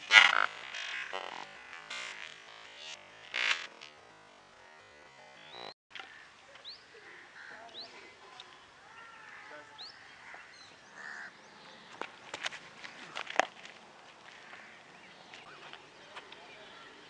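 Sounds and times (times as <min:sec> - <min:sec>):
birds chirping: 0:00.0 - 0:13.5, 0:14.2 - 0:17.0
harsh bird calls: 0:05.4 - 0:12.0.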